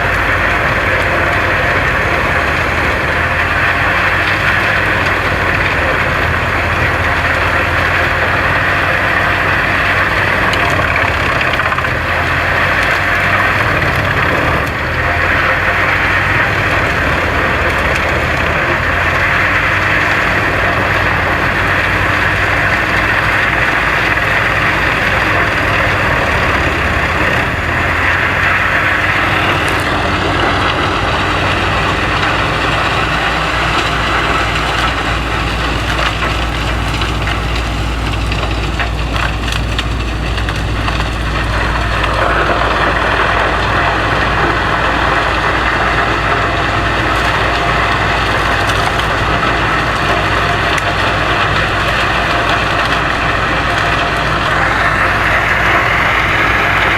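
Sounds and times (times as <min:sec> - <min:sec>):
wood chipper chipping wood: 0:00.0 - 0:56.9.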